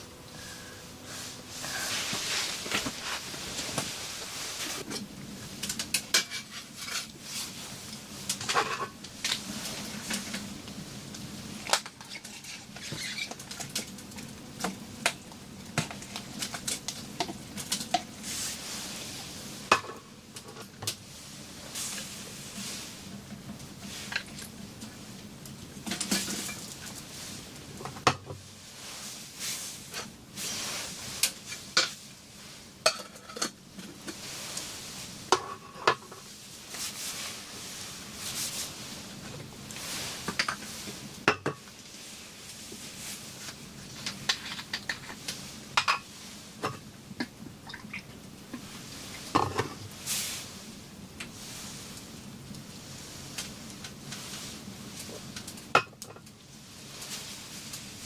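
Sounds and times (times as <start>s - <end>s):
steady hiss: 0.0s - 58.0s
cookware and utensils clinking: 5.6s - 7.4s, 8.3s - 9.4s, 32.8s - 33.6s.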